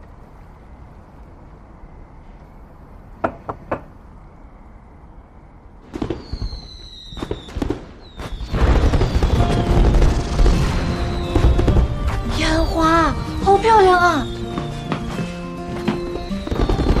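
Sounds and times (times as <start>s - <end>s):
whistling firework pops: 5.9s - 12.1s, 14.2s - 17.0s
fireworks bangs and crackling: 5.9s - 17.0s.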